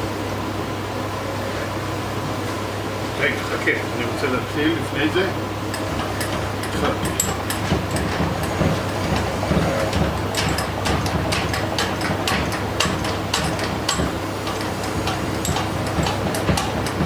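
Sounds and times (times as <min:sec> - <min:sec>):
workshop machine humming: 0:00.0 - 0:17.0
irregular clicks and knocks: 0:05.7 - 0:17.0.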